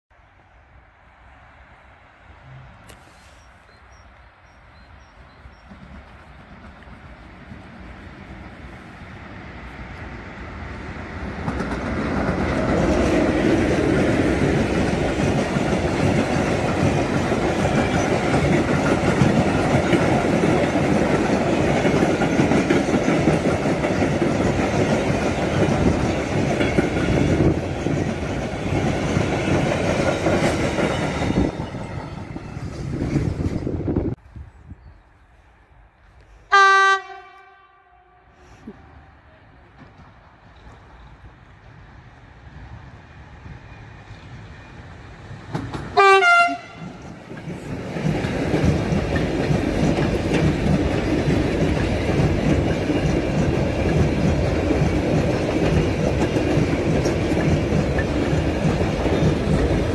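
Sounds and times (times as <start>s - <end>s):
freight train wheels clattering: 11.3s - 33.7s, 45.4s - 59.9s.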